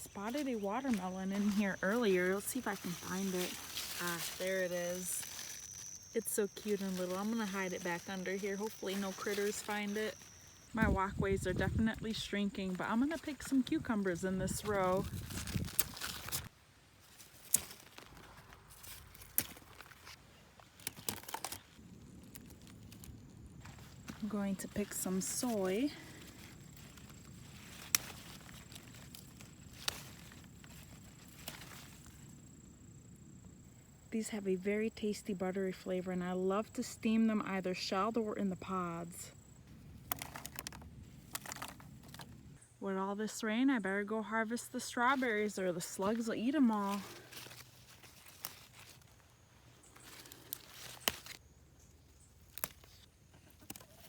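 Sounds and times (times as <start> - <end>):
plants rustling: 0.0 - 42.6, 44.3 - 54.0
pods snapping off: 27.8 - 30.1.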